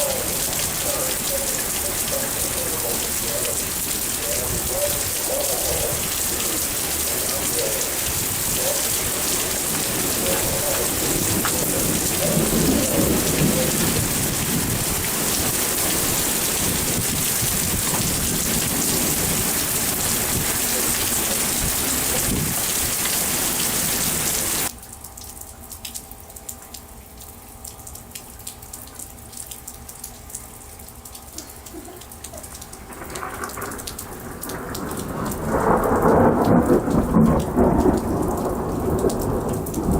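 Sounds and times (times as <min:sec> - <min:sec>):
heavy rain hiss: 0:00.0 - 0:24.7
thunder rumbling: 0:00.0 - 0:24.7, 0:32.8 - 0:39.9
scattered rain drops: 0:00.0 - 0:39.9.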